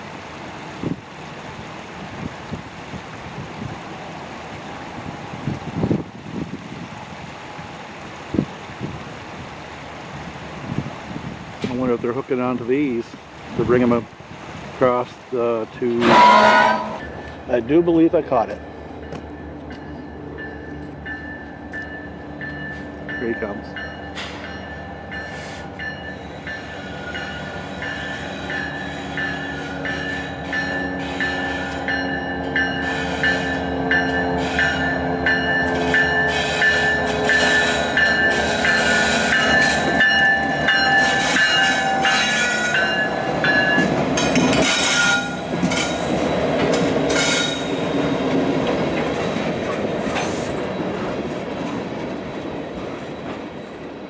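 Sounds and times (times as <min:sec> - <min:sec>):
high train squeal: 0:15.9 - 0:17.9, 0:18.5 - 0:48.4, 0:49.0 - 0:54.0
train wheels clicking over rail joints: 0:15.9 - 0:54.0.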